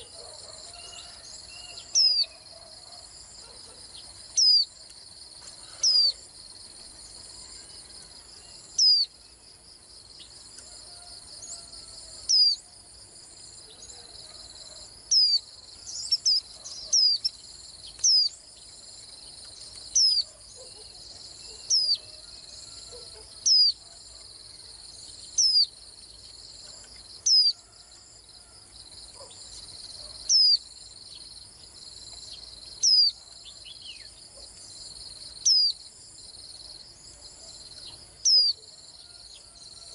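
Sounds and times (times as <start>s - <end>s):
bird chirping: 0.0s - 4.8s, 5.4s - 6.2s, 7.0s - 9.4s, 11.4s - 12.6s, 13.6s - 24.2s, 25.0s - 27.6s, 29.2s - 35.8s, 37.1s - 38.7s.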